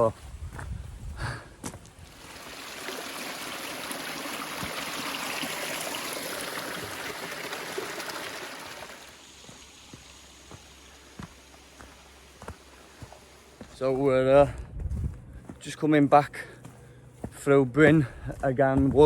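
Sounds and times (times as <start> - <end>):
mountain stream rushing: 2.1 - 13.7.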